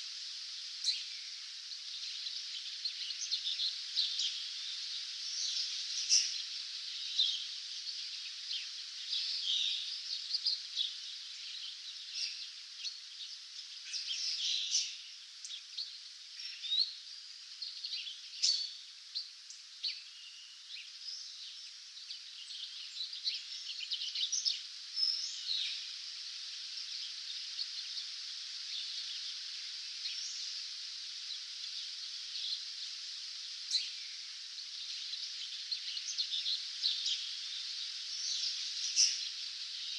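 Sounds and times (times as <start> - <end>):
songbirds chirping and trilling: 0.0 - 39.9
steady high hiss: 0.0 - 39.9.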